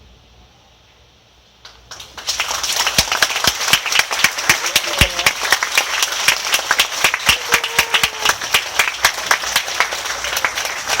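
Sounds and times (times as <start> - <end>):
audience applauding: 1.6 - 11.0
faint voice calling out: 7.3 - 8.4.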